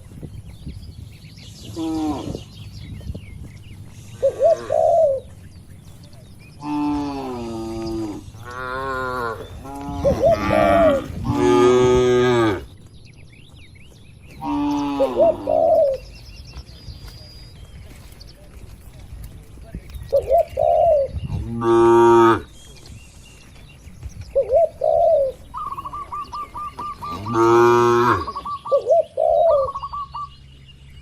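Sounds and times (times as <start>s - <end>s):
bird calling: 1.1s - 18.5s, 19.7s - 31.0s
cattle mooing: 6.6s - 12.7s, 27.1s - 28.4s.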